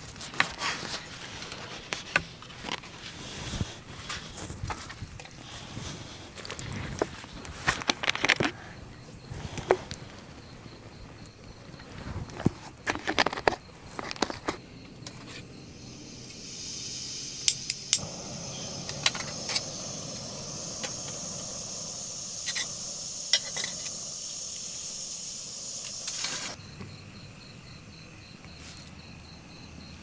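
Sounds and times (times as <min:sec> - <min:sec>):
food sizzling in a pan: 0:18.0 - 0:26.6.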